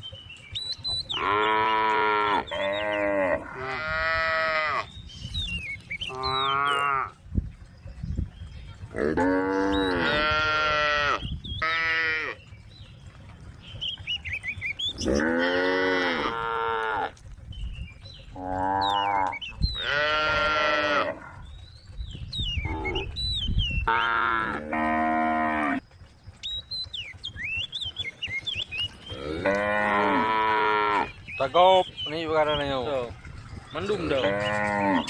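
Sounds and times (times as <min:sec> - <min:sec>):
cow mooing: 0:01.2 - 0:04.9, 0:06.1 - 0:07.2, 0:09.0 - 0:12.4, 0:15.0 - 0:17.2, 0:18.4 - 0:21.4, 0:23.9 - 0:25.8, 0:29.1 - 0:31.1, 0:34.0 - 0:35.0.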